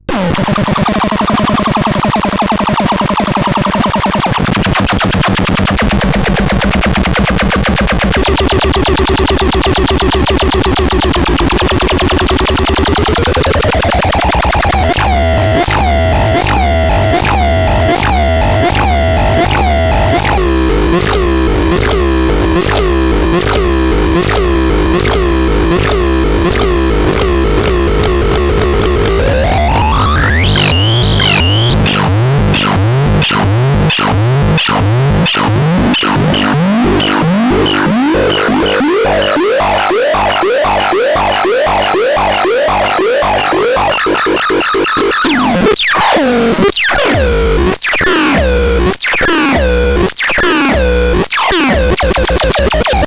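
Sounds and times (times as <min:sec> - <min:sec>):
harsh synthesizer tones: 0:08.3 - 0:53.0.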